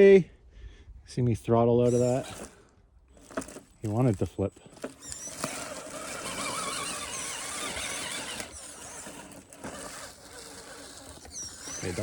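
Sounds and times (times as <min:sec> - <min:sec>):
electric motor whining: 0:01.8 - 0:02.6, 0:03.2 - 0:12.0.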